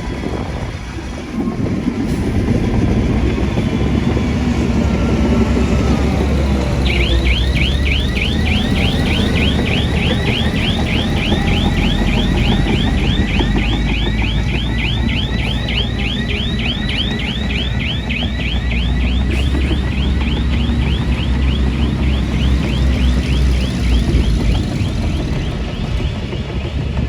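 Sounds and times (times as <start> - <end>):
diesel engine rumbling: 0.0 - 27.0
reversing alarm chirps: 2.2 - 26.5.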